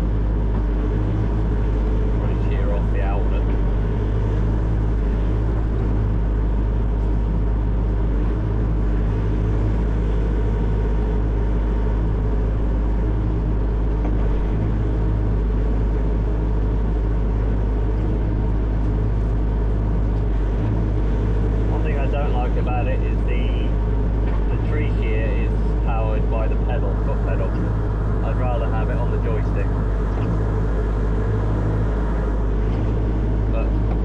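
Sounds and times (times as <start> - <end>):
diesel engine droning: 0.0 - 34.0.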